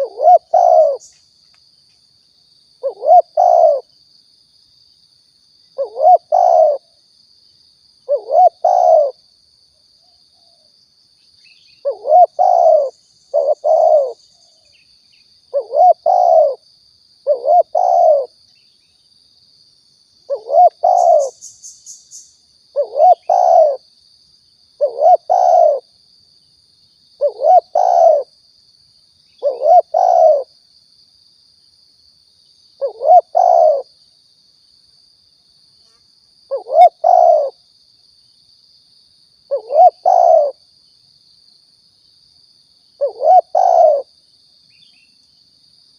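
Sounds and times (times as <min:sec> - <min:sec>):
dove cooing: 0:00.0 - 0:01.1, 0:02.8 - 0:03.9, 0:05.8 - 0:06.9, 0:08.1 - 0:09.2, 0:11.8 - 0:14.2, 0:15.5 - 0:16.6, 0:17.2 - 0:18.3, 0:20.3 - 0:21.4, 0:22.7 - 0:23.8, 0:24.8 - 0:25.9, 0:27.2 - 0:28.3, 0:29.4 - 0:30.5, 0:32.8 - 0:33.9, 0:36.5 - 0:37.6, 0:39.5 - 0:40.6, 0:43.0 - 0:44.1.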